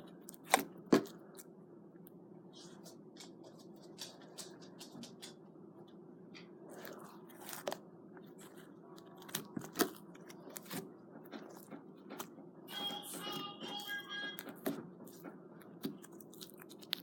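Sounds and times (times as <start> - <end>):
slime squished by hand: 0.2 - 1.5, 13.8 - 17.0.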